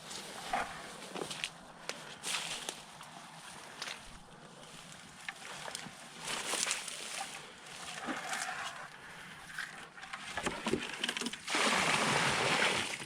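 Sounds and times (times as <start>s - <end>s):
water sloshing and splashing: 5.2s - 13.0s.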